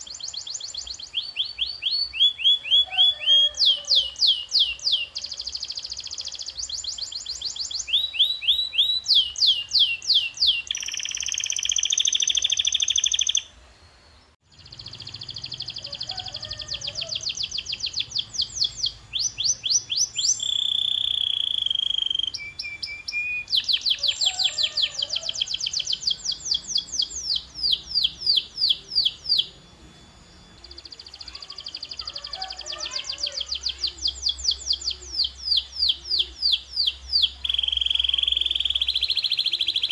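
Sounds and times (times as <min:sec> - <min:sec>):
canary singing: 0:00.0 - 0:13.6, 0:14.4 - 0:39.9.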